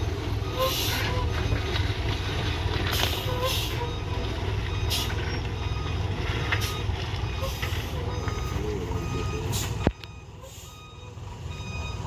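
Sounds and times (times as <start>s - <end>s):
diesel truck engine rumbling: 0.0s - 12.0s.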